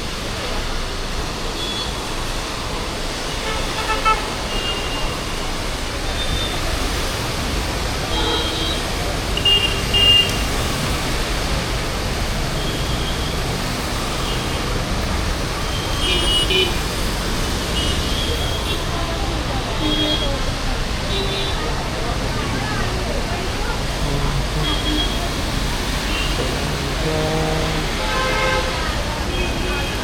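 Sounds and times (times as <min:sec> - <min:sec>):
busy street traffic: 0:00.0 - 0:30.0
vehicle horn toots: 0:27.4 - 0:30.0.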